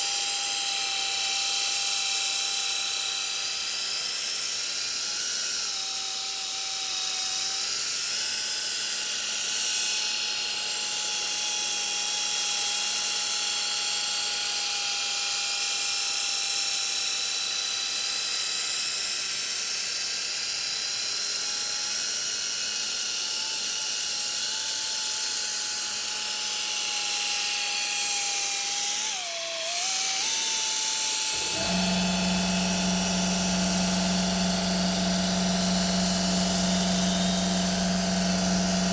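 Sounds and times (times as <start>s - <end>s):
electric power tool whining: 24.9s - 38.9s
deep hum: 31.4s - 38.9s.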